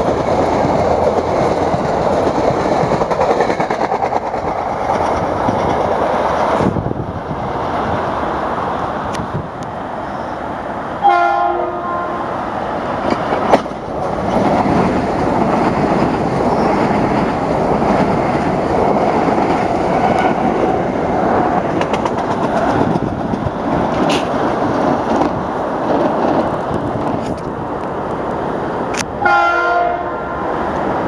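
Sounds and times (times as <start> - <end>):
train rumble and wheel clatter: 0.0 - 31.0
train horn blast: 11.0 - 12.3, 29.2 - 30.3.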